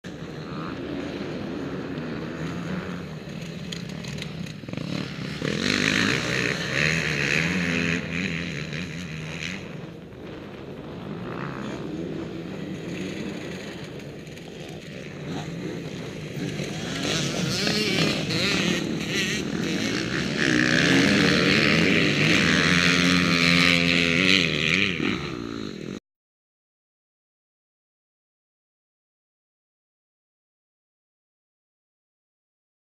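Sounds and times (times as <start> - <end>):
motocross bikes revving: 0.1 - 26.0.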